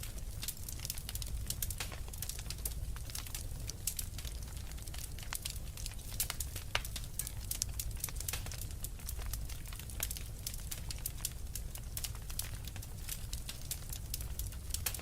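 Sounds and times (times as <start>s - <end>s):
fire crackling and popping: 0.0s - 15.0s
low fire rumble: 0.0s - 15.0s.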